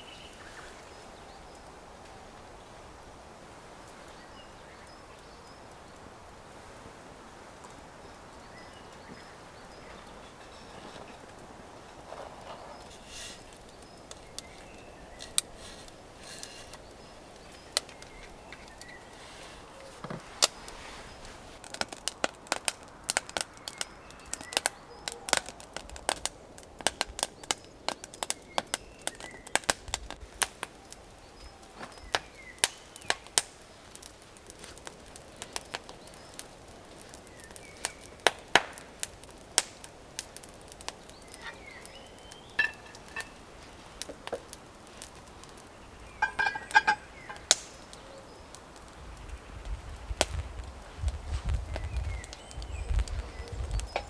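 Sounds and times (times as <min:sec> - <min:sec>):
wood snapping and cracking: 0:21.6 - 0:49.3.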